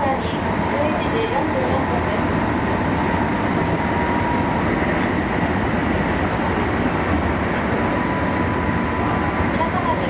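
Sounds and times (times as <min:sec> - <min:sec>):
wheels rumbling on rail: 0:00.0 - 0:10.0.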